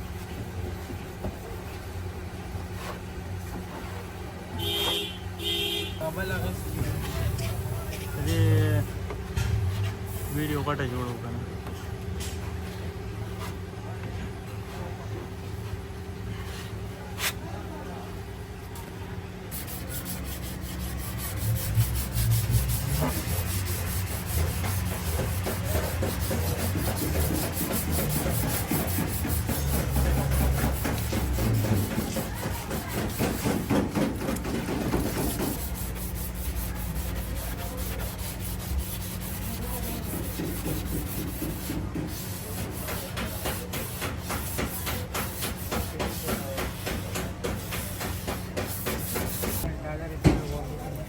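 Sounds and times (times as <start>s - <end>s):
sanding strokes on metal: 19.5s - 49.7s.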